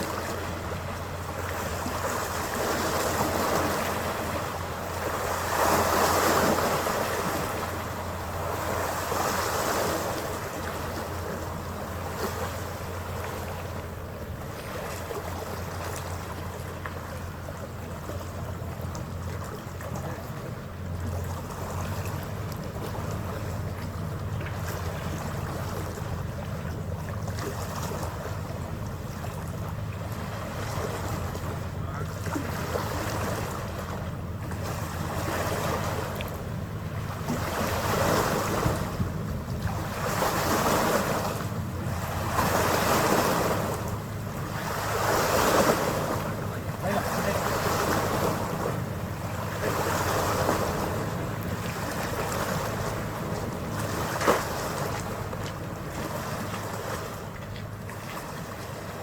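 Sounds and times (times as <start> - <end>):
ferry engine droning: 0.0 - 59.0
water rushing along hull: 0.0 - 59.0
wind buffeting microphone: 20.0 - 57.3.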